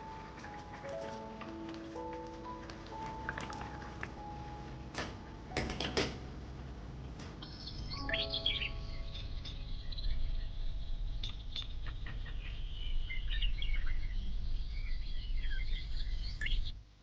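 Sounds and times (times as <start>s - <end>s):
steady low rumble: 0.0s - 16.8s
small birds chirping: 7.2s - 16.8s.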